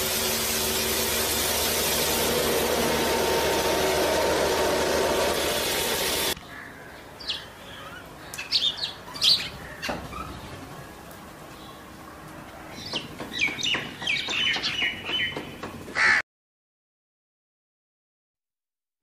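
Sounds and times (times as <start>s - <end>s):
steady machine noise: 0.0s - 6.4s
small birds chirping: 6.4s - 15.6s.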